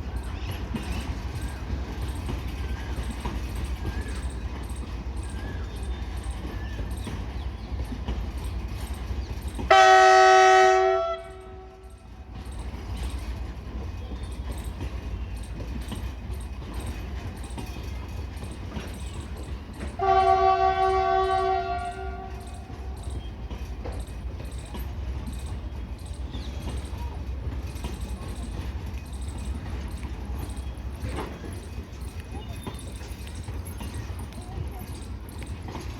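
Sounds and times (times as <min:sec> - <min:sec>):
train rumbling: 0:00.0 - 0:35.9
train horn: 0:09.7 - 0:12.1, 0:20.0 - 0:22.8.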